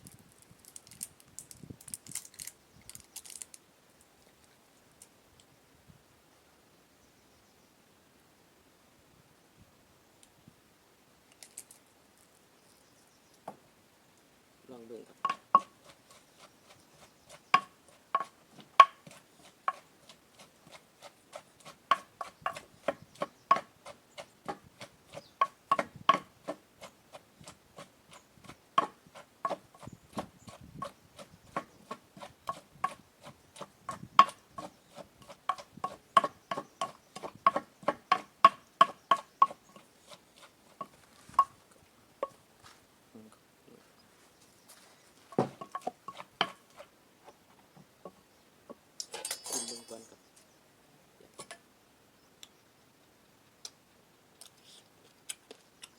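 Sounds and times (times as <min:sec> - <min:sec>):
pestle pounding in mortar: 0:15.2 - 0:16.2, 0:17.3 - 0:40.2, 0:45.4 - 0:46.9.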